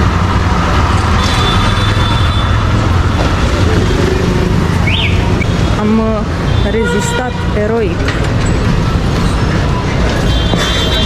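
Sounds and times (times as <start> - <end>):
road noise: 0.0 - 11.0
vehicle engines running: 0.0 - 11.0.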